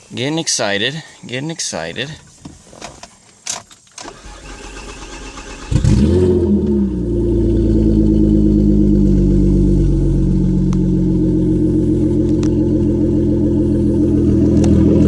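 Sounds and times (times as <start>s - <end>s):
car engine starting and idling: 4.0s - 15.0s.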